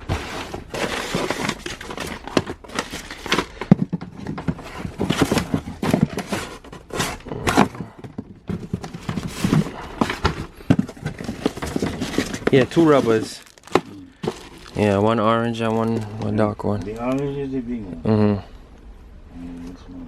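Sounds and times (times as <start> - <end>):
rustling: 0.0 - 17.6
handling clicks and knocks: 0.6 - 14.8.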